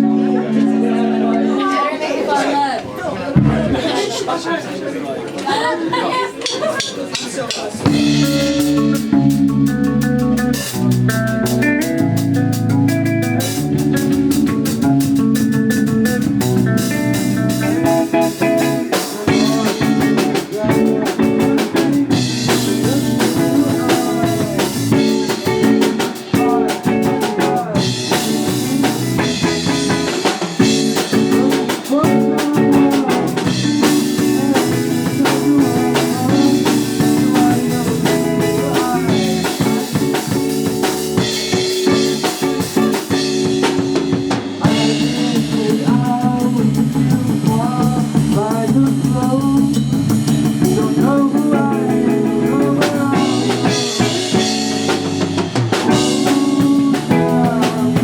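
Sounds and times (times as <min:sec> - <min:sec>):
electric guitar: 0:00.0 - 0:01.6, 0:07.8 - 0:58.0
drum kit playing: 0:03.3 - 0:04.0, 0:06.3 - 0:58.0
person singing: 0:17.6 - 0:58.0.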